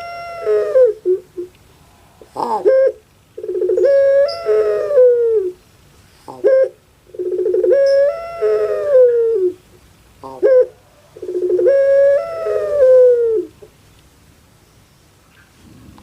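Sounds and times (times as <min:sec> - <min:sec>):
dove cooing: 0:00.0 - 0:01.5, 0:02.2 - 0:05.6, 0:06.2 - 0:13.8.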